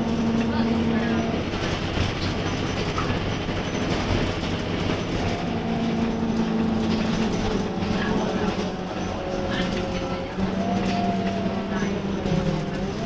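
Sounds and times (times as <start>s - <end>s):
bus diesel engine running: 0.0s - 13.0s
road and body rattle: 0.0s - 13.0s.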